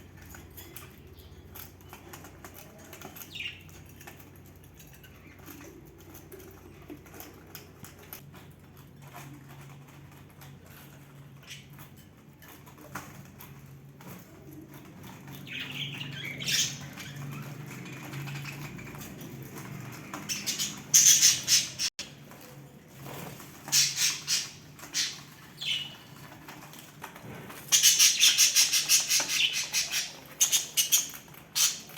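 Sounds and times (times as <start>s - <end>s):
budgerigars chattering and squawking: 15.4s - 19.1s, 20.2s - 22.0s, 23.7s - 26.0s, 27.7s - 31.9s.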